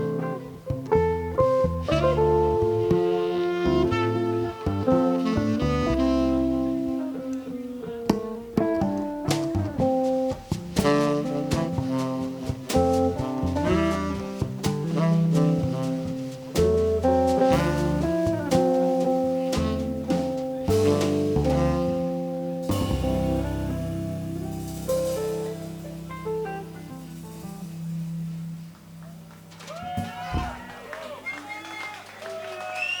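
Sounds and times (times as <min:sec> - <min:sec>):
guitar playing quick notes: 0:00.0 - 0:29.1
jazz combo playing: 0:00.0 - 0:29.5
double bass: 0:00.0 - 0:30.6.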